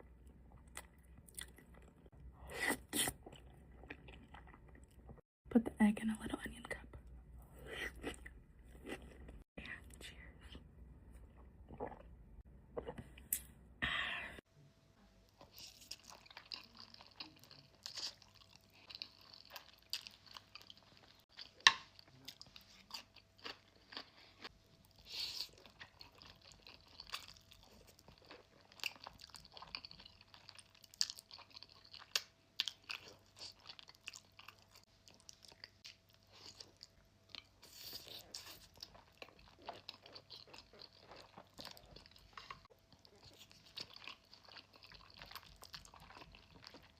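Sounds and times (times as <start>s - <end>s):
crunchy food chewing: 15.4s - 46.9s.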